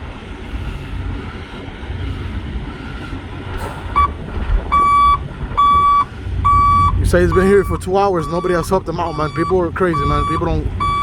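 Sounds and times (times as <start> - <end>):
diesel truck engine idling: 0.0 - 11.0
reversing beeper: 3.9 - 11.0.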